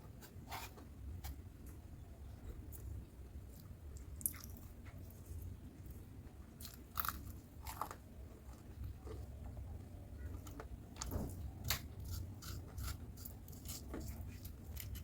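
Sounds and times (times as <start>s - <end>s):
person chewing crunchy food: 6.6s - 9.3s, 11.6s - 15.0s.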